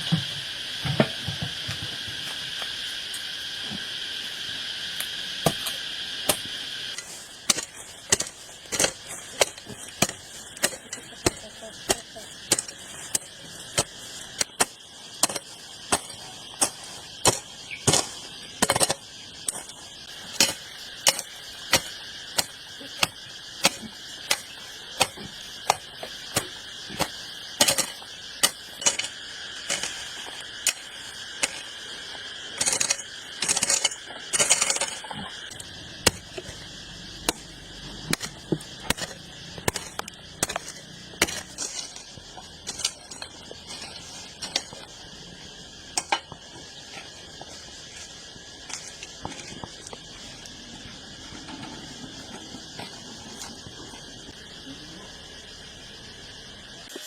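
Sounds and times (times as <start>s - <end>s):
high insect drone: 0.0s - 57.0s
scraping: 6.9s - 45.0s.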